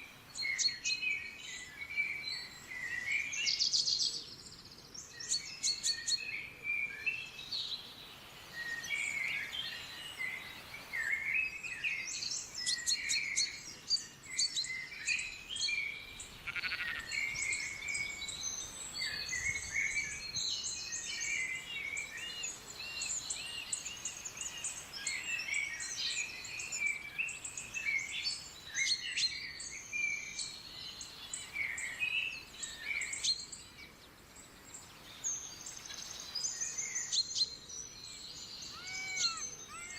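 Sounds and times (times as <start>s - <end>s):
songbirds singing and calling: 0.0s - 39.9s.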